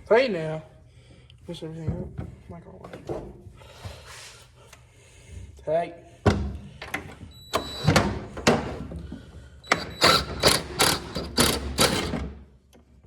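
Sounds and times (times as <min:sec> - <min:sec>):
ratchet wrench ratcheting: 0:09.8 - 0:12.2.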